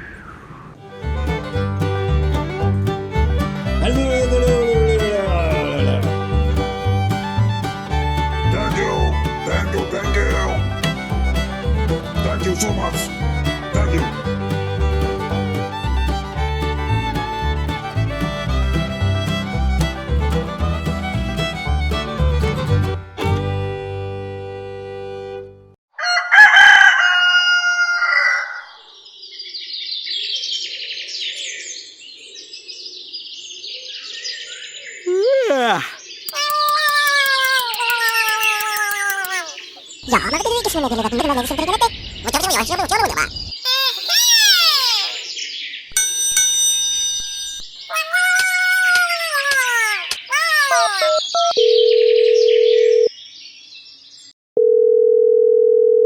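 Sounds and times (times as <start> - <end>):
small birds chirping: 3.6 - 19.8, 28.8 - 40.6, 41.7 - 45.9, 47.8 - 51.5
rooster crowing: 25.9 - 28.8
quick chirps: 36.3 - 39.9
cartoon whistling sliding down: 43.7 - 45.3
telephone ringing tone: 51.4 - 53.1, 54.6 - 56.0.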